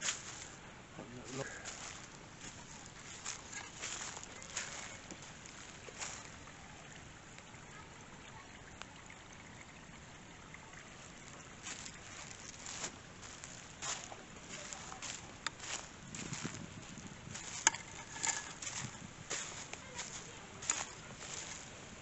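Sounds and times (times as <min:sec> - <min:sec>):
water trickling: 0:00.0 - 0:22.0.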